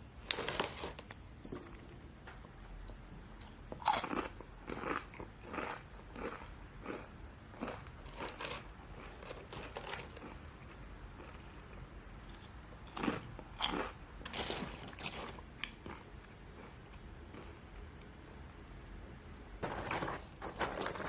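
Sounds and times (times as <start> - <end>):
person chewing crunchy food: 3.4 - 17.6.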